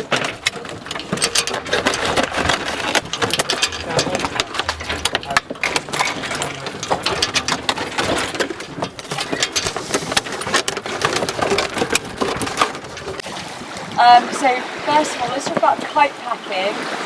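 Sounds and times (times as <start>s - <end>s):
plastic bottles crackling: 0.0s - 13.4s.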